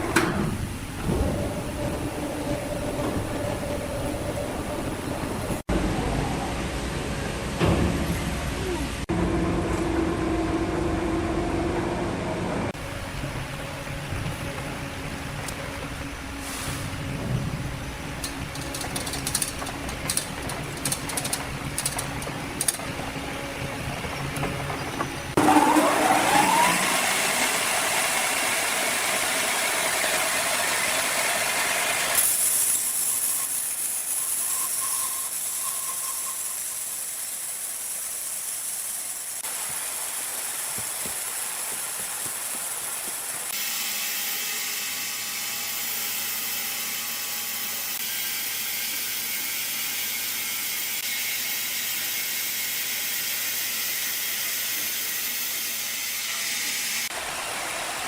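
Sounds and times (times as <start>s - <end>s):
woodworking machinery hissing: 13.7s - 58.0s
motor whine rising: 25.4s - 32.1s.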